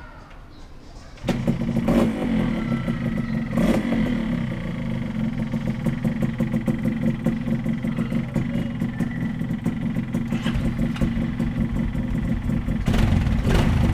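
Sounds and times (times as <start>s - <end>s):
motorcycle engine revving and idling: 1.2s - 13.9s.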